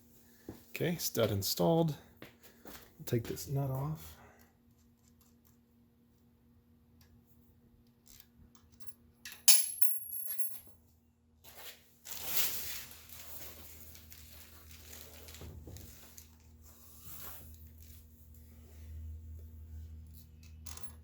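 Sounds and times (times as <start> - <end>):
sharp metallic clink: 9.4 - 10.5.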